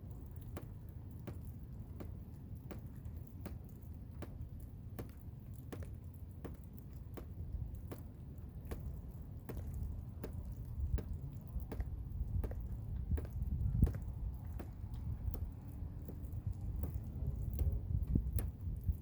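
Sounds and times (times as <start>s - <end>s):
blizzard wind rumbling: 9.6s - 19.0s.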